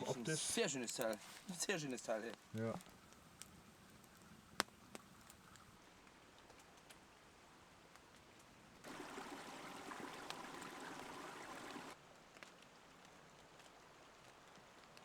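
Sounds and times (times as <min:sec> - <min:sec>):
rushing water-like noise: 0:08.8 - 0:12.0.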